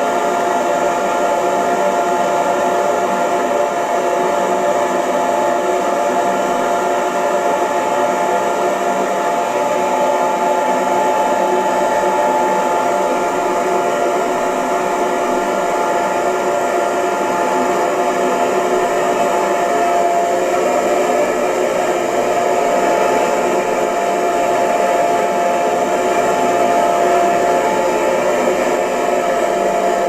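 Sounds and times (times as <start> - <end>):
hair dryer running: 0.0 - 30.0.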